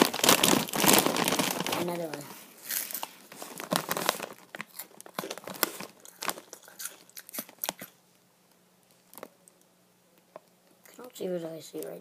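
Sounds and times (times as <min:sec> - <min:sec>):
crunchy snack chewing: 0:03.7 - 0:08.0.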